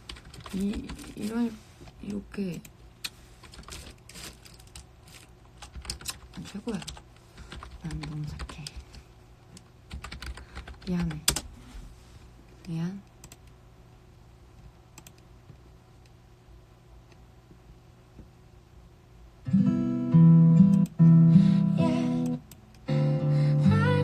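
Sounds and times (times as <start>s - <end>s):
acoustic guitar chords: 19.5s - 24.0s.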